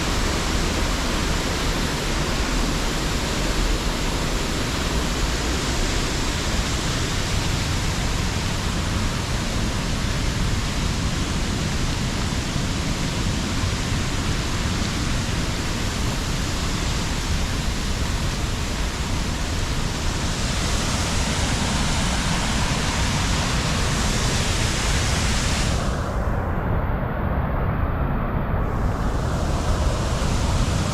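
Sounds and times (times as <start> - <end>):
waterfall roaring: 0.0 - 26.0, 28.7 - 30.9.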